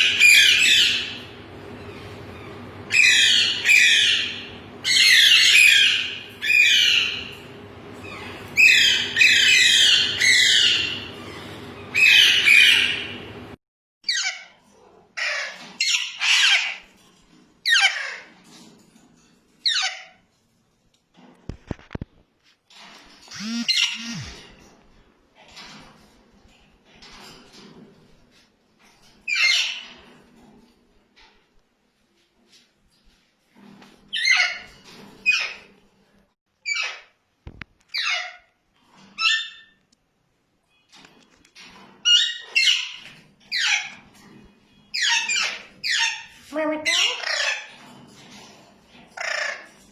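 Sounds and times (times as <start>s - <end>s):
parakeets squawking: 0.0s - 1.3s, 2.0s - 7.4s, 8.0s - 13.2s, 17.7s - 18.3s, 23.3s - 24.5s, 44.9s - 47.8s, 49.1s - 49.8s.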